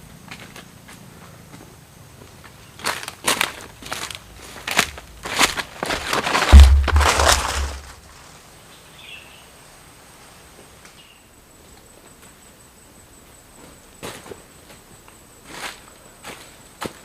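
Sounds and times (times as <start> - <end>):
crunching footsteps: 2.8 - 8.3.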